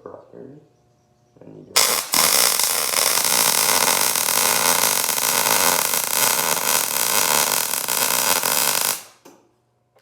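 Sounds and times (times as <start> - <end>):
welding arc crackling hiss: 1.8 - 9.3.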